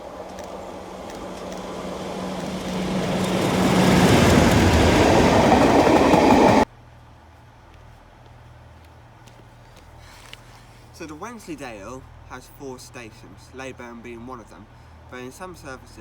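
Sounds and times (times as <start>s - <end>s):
train running close by: 0.0s - 6.7s.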